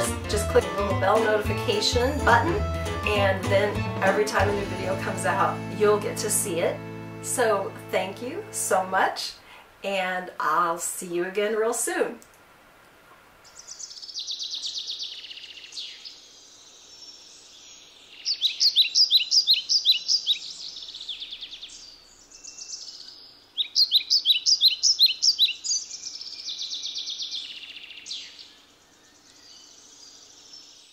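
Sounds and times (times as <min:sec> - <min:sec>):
rapid bird chirps: 0:13.4 - 0:30.9
songbird singing trilled phrases: 0:13.5 - 0:30.9.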